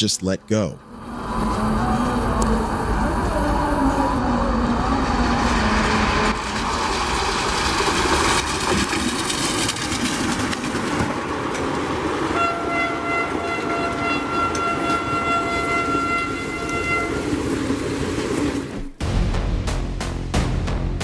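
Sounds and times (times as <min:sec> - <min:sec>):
train rumbling past: 0:00.7 - 0:19.7
wavering rail squeal: 0:12.3 - 0:19.0.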